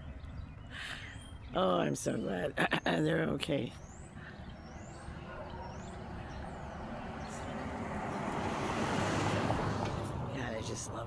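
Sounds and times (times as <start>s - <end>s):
car passing: 4.4s - 11.0s.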